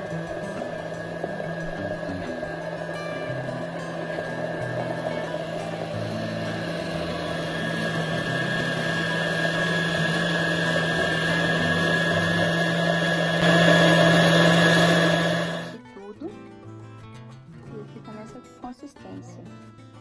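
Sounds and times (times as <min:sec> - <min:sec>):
electric blender running: 0:00.0 - 0:15.8.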